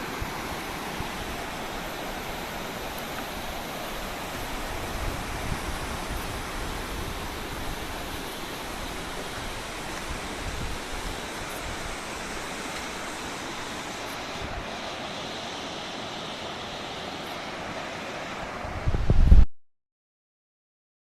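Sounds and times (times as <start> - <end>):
river water rushing: 0.0 - 18.9
wind buffeting microphone: 3.5 - 13.6, 18.6 - 19.5.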